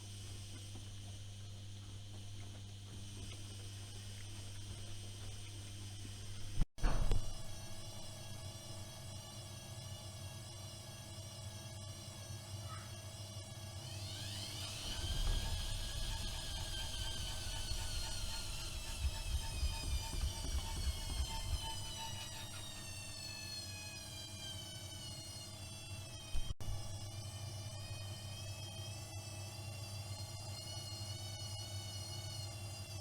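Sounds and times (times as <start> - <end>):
washing machine motor whine: 0.0 - 33.0.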